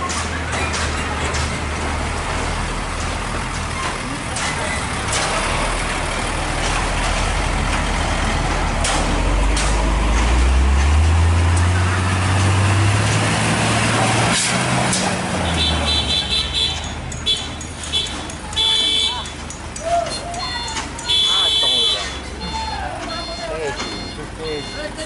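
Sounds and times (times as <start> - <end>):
truck engine revving: 0.0 - 25.0
vehicle horn toots: 15.4 - 19.3, 20.0 - 25.0.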